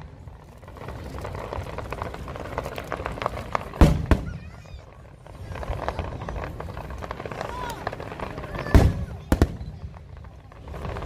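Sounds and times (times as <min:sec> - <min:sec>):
fireworks crackling pops: 0:00.0 - 0:11.0
loud firework bangs: 0:02.5 - 0:11.0.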